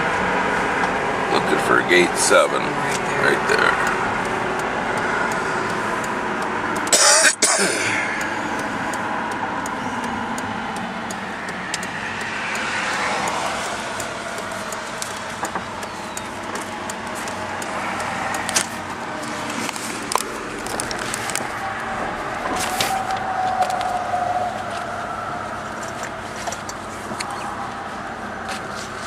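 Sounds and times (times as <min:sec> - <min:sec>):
vehicle engine running: 0:00.0 - 0:23.9
road noise inside moving vehicle: 0:00.0 - 0:29.0
small clicks: 0:08.2 - 0:21.5.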